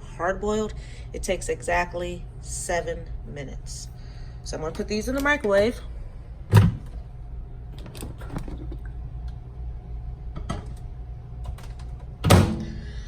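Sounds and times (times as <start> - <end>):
low steady hum: 0.0 - 13.0
microwave door shutting: 6.5 - 7.0, 11.5 - 12.8.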